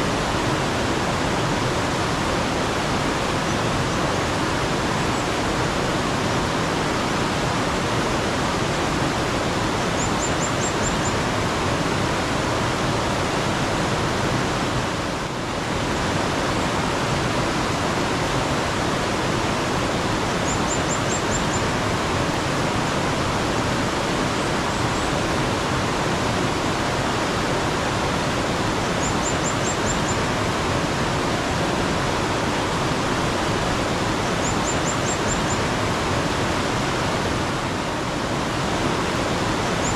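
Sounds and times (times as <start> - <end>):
mountain stream rushing: 0.0 - 39.9
small bird chirping: 20.4 - 21.6, 34.4 - 35.6.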